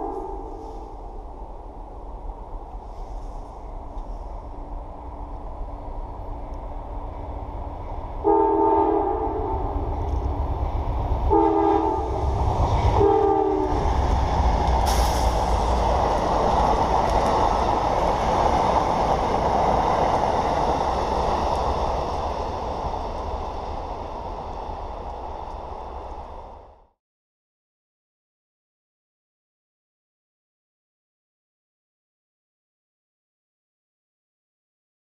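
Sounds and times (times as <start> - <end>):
train horn blasts: 0.0 - 0.8, 8.2 - 9.9, 11.3 - 13.9
train passing with wheel noise: 0.0 - 26.9.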